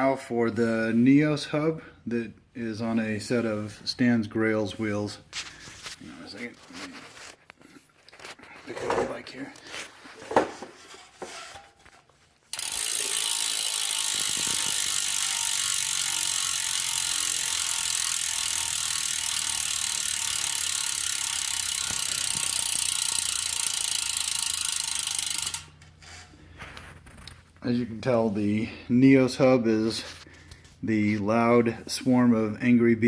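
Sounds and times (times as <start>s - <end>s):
bicycle hub ratcheting buzz: 12.5s - 26.2s.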